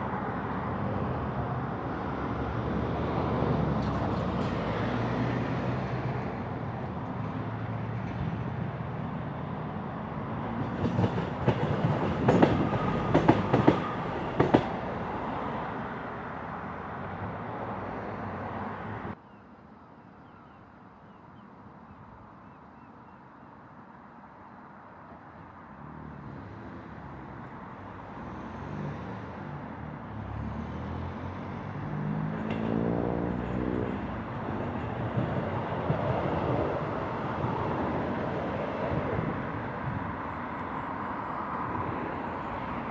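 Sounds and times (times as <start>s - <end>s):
train approaching: 0.0s - 18.8s, 26.4s - 42.9s
passenger train running past: 0.0s - 19.2s, 26.2s - 42.9s
train wheels clicking over rail joints: 10.6s - 14.8s.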